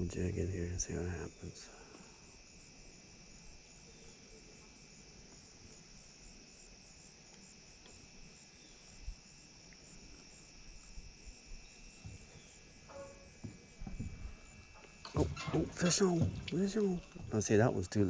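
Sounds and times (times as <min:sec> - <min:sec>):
insects chirring: 0:00.0 - 0:18.0
soft low bump: 0:12.0 - 0:17.5.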